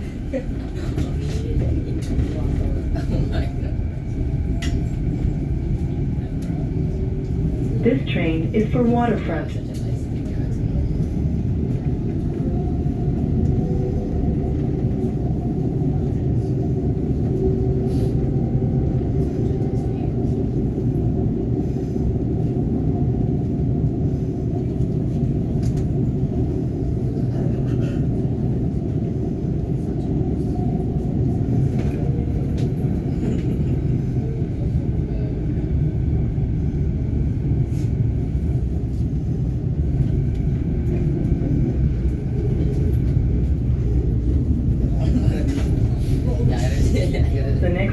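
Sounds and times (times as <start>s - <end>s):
train running deep rumble: 0.0s - 47.9s.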